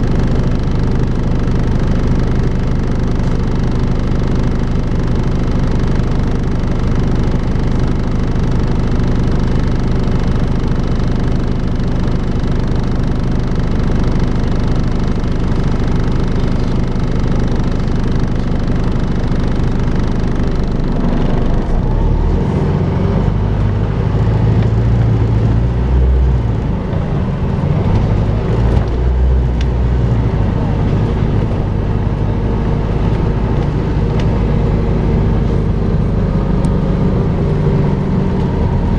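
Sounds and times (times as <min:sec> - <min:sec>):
bus engine hoovering drone: 0:11.5 - 0:38.9
deep uneven rumble: 0:15.0 - 0:38.9.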